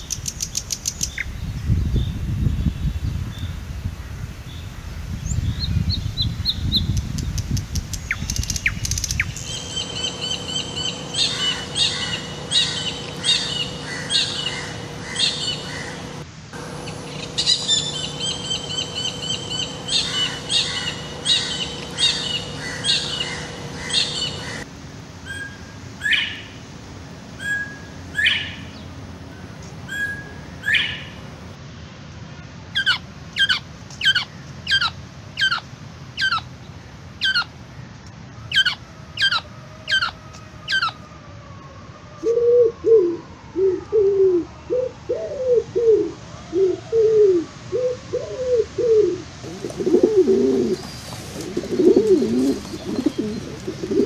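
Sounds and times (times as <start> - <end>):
faint steady hum: 0.0 - 31.6, 36.6 - 54.0
birds downward-sliding calls: 8.0 - 31.6, 46.5 - 54.0
bird ringing call: 9.2 - 31.5.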